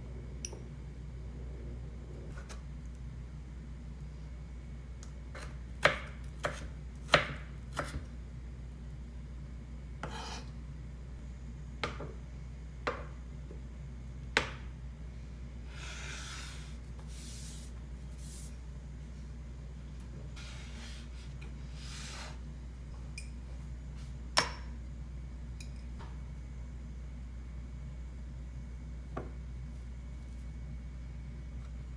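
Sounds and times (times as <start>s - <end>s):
low hum: 0.0s - 5.0s
knife chopping on cutting board: 5.4s - 8.1s, 10.0s - 10.4s
knife scraping: 10.0s - 10.5s.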